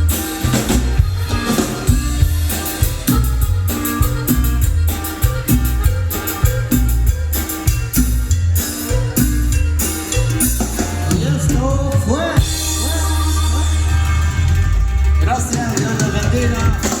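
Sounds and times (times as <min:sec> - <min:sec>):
upbeat latin music: 0:00.0 - 0:17.0.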